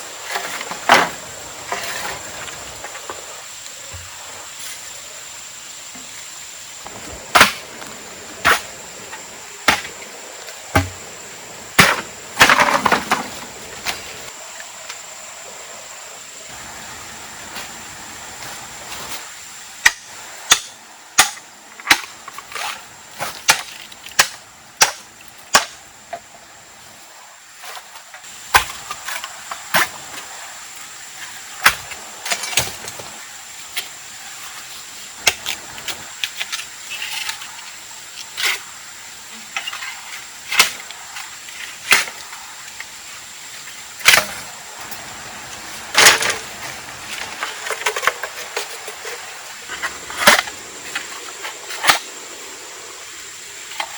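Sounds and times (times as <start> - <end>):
tool striking wood: 10.7 - 11.0.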